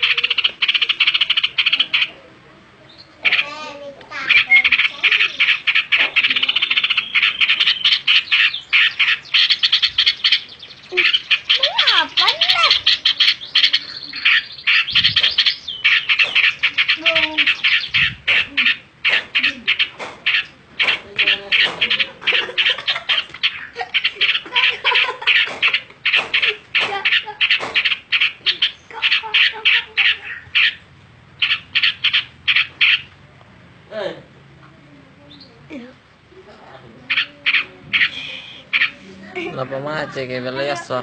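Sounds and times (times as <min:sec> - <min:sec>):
bird singing and chattering: 0:00.0 - 0:02.2, 0:02.8 - 0:33.2, 0:35.1 - 0:35.9, 0:37.0 - 0:41.0.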